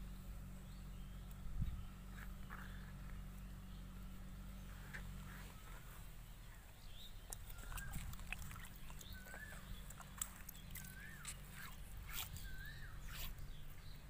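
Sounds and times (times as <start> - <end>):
low steady hum: 0.0 - 14.0
bird whistles: 10.8 - 13.6.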